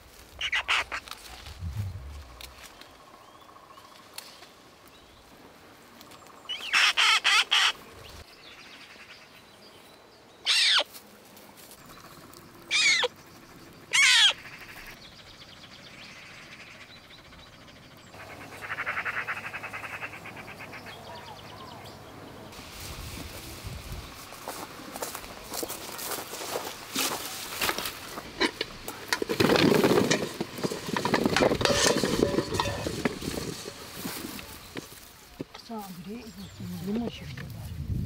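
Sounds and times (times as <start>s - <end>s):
bird harsh calls: 0.4s - 2.8s, 6.5s - 7.8s, 10.4s - 10.9s, 12.7s - 15.3s, 18.1s - 22.1s.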